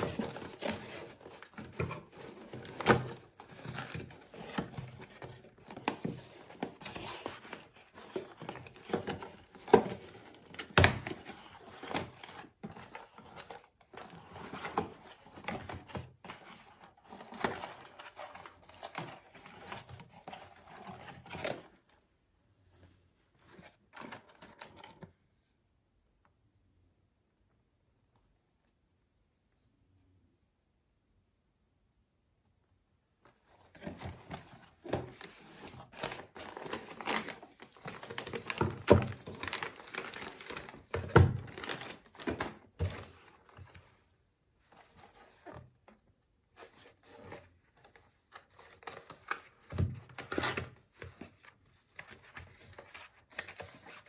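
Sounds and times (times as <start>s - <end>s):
plastic packaging crinkling: 34.8s - 43.1s.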